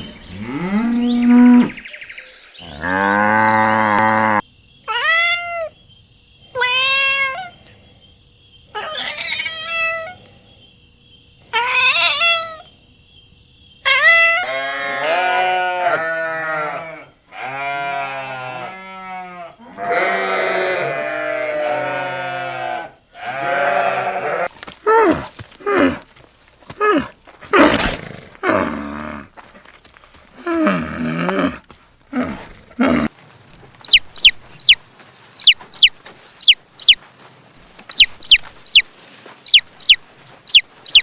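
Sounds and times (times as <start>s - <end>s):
animal short sharp calls: 33.8s - 34.8s, 35.4s - 37.0s, 37.9s - 38.9s, 39.5s - 41.0s.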